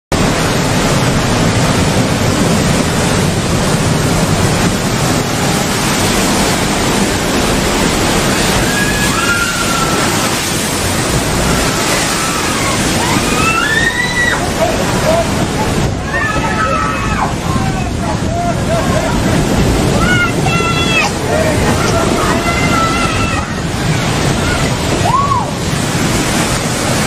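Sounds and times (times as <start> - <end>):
big waves surging: 0.1 - 27.0
high drawn-out cries: 8.3 - 10.4, 11.4 - 14.5
people shouting: 8.3 - 10.4, 11.3 - 15.3, 15.9 - 25.6.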